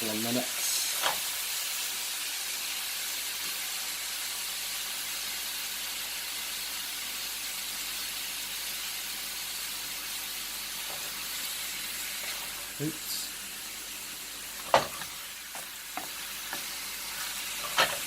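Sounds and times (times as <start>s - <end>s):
chicken sizzling in frying pan: 0.0s - 18.0s.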